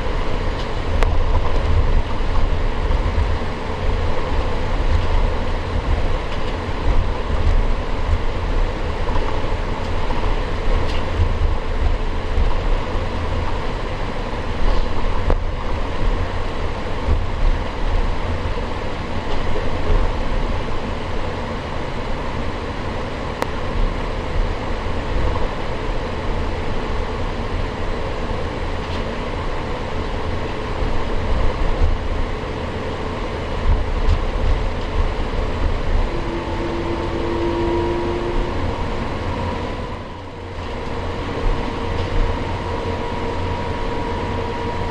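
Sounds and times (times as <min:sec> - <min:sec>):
jet engines humming at idle: 0:00.0 - 0:44.9
wheels rumbling on taxiway: 0:00.0 - 0:44.9.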